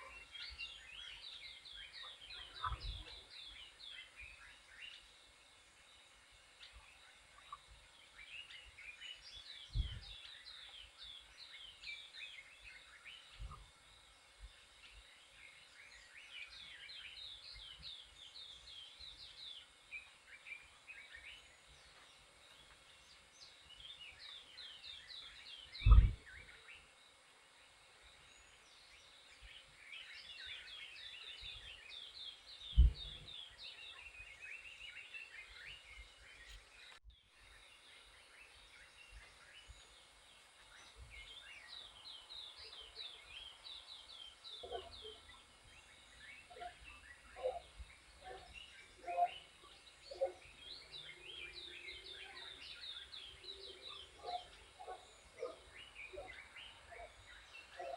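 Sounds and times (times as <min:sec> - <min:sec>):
small birds chirping: 0:00.0 - 0:57.9
dull low thumps: 0:32.7 - 0:33.3.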